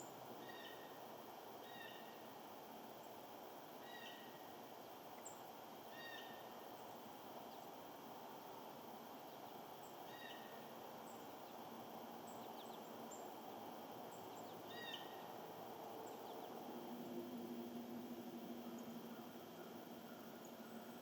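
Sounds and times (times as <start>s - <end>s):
bird calls: 0.0s - 1.0s, 1.6s - 2.2s, 3.8s - 4.5s, 5.2s - 6.5s, 9.3s - 11.6s, 14.1s - 15.3s, 17.7s - 21.0s
low steady hum: 0.0s - 21.0s.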